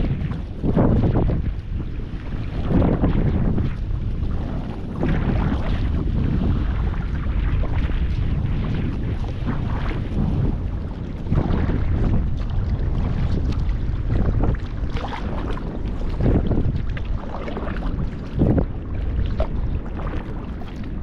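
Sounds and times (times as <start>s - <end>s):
wind noise on microphone: 0.0s - 21.0s
paddle strokes splashing: 3.6s - 21.0s
water sloshing: 9.1s - 21.0s.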